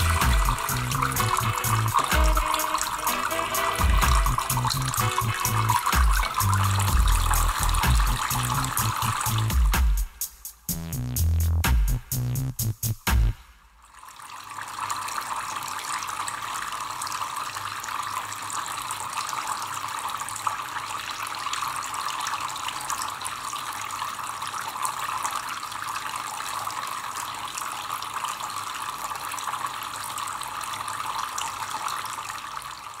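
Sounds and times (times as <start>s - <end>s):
liquid splashing in fountain: 0.0s - 9.6s.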